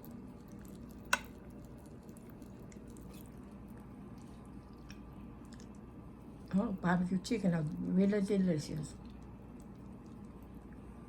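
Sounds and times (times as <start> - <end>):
wet sticky eating sounds: 0.0 - 6.5, 8.9 - 11.0
steady low hum: 0.0 - 11.0.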